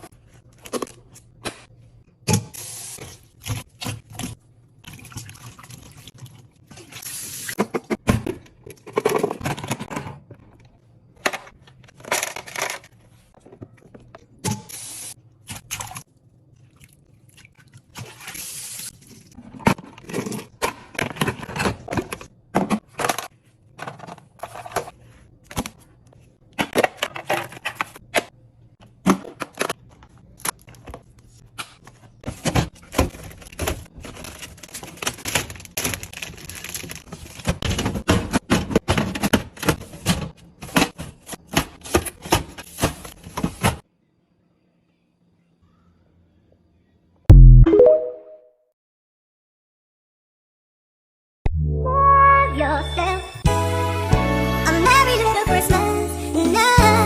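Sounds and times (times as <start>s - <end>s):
food containers being handled: 7.6s - 14.3s, 19.4s - 43.8s.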